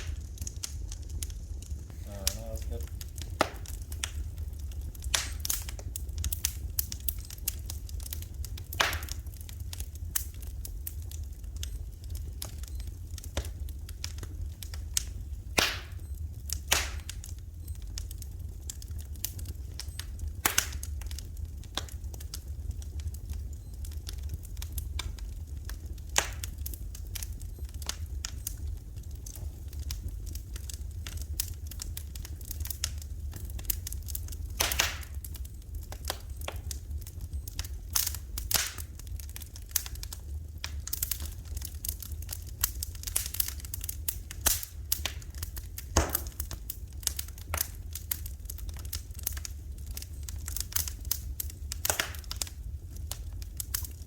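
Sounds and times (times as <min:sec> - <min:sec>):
steady low hum: 0:00.0 - 0:54.0
wood fire crackling and popping: 0:00.0 - 0:54.0.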